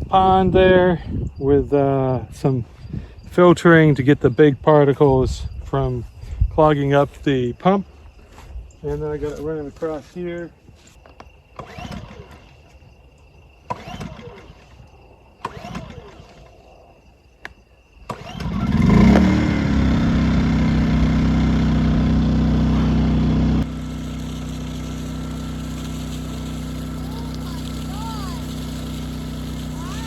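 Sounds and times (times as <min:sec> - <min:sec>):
generator engine running: 0:18.5 - 0:30.0
recoil starter pulls: 0:23.6 - 0:30.0.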